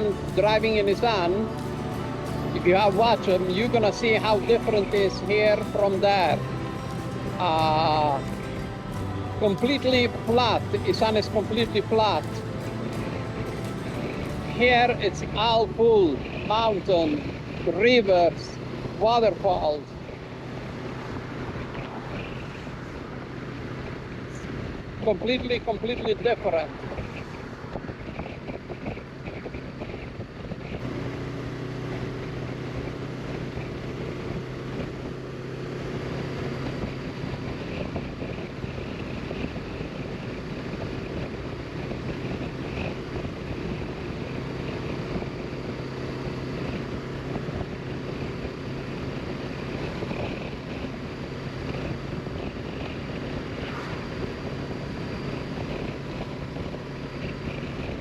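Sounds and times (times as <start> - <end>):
motorcycle engine cruising: 0.0 - 58.0
wind rushing over microphone: 0.0 - 58.0.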